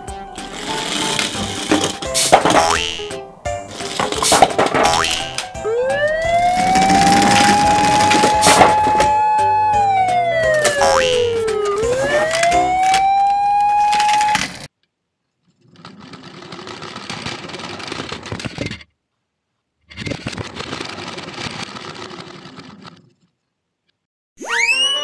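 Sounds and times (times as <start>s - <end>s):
music: 0.0s - 13.6s
siren sound effect: 5.2s - 14.6s, 24.4s - 25.0s
quick rising glide: 5.6s - 14.2s.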